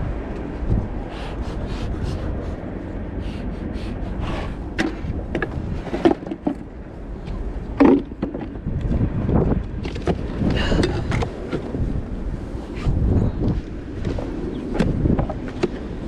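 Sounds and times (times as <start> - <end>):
wind buffeting microphone: 0.0 - 16.0
sharp knocks and clatters: 4.8 - 8.6.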